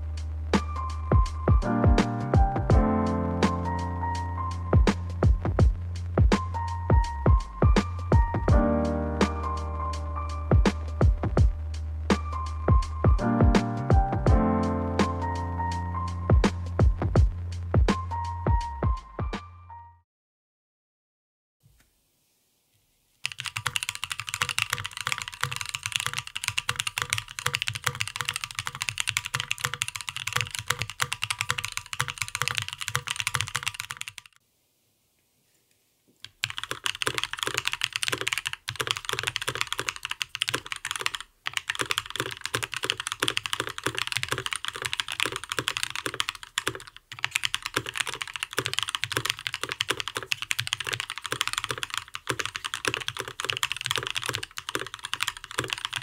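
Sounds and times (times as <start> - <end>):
mechanical keyboard typing: 23.2 - 34.4, 36.2 - 56.0.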